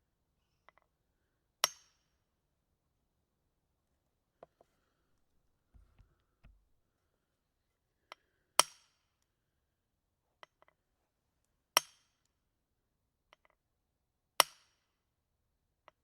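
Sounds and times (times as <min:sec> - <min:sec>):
faint light knocks: 0:05.2 - 0:06.8.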